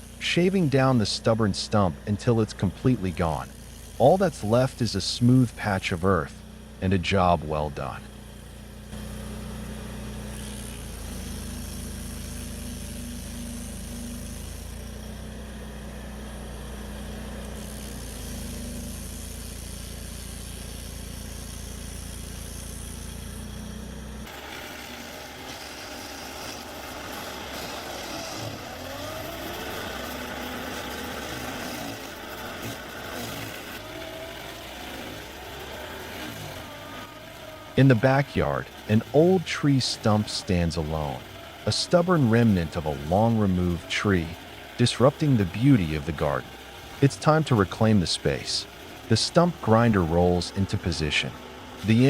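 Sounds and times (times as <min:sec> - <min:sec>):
high-pitched machine noise: 0:00.0 - 0:52.0
stump grinder engine running: 0:00.0 - 0:52.0.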